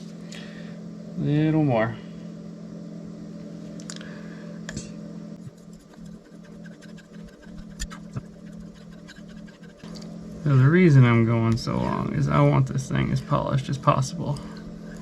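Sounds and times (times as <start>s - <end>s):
low hum: 0.0s - 15.0s
knife scraping on whetstone: 5.5s - 9.9s.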